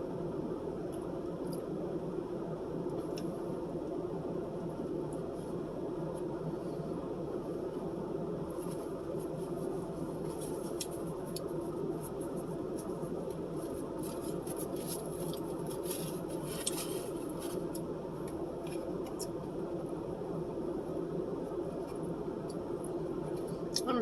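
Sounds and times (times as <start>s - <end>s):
low hum of room noise: 0.0s - 24.0s
light clicks and crinkles: 8.5s - 19.5s.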